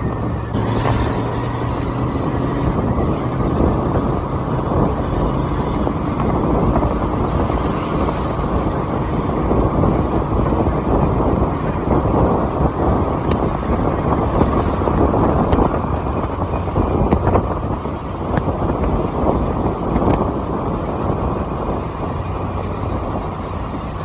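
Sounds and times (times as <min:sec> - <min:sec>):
wind and road noise: 0:00.0 - 0:24.0.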